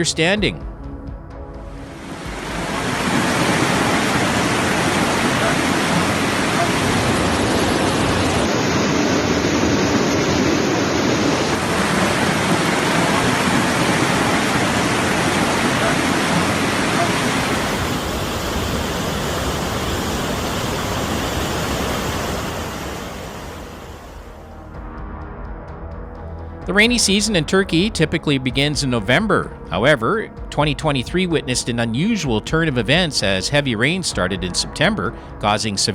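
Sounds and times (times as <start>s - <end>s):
floodwater rushing: 1.9s - 24.4s
heavy rain: 1.9s - 24.4s.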